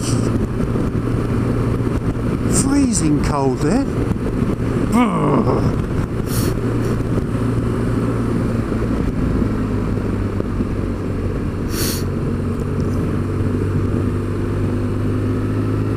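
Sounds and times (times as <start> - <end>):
wind noise on microphone: 0.0 - 14.3
motorcycle engine running: 0.0 - 15.9
brief hiss: 11.7 - 12.1.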